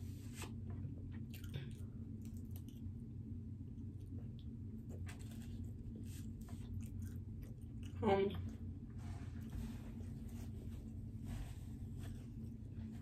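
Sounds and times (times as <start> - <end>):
steady low hum: 0.0 - 13.0
person chewing pizza: 0.8 - 3.0, 3.9 - 8.0.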